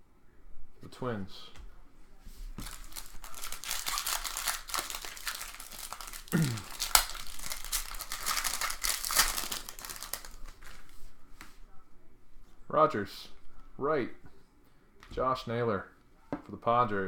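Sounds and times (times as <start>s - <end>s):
foil wrapper crinkling and tearing: 2.6s - 10.9s.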